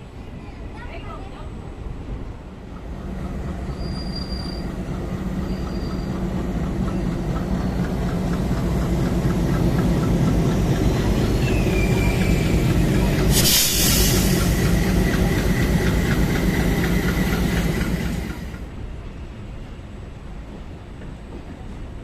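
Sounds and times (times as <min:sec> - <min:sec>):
high wheel squeals: 0:03.7 - 0:07.3, 0:10.9 - 0:14.7
wheels clattering over track: 0:05.7 - 0:18.6
loud hiss: 0:11.2 - 0:18.5.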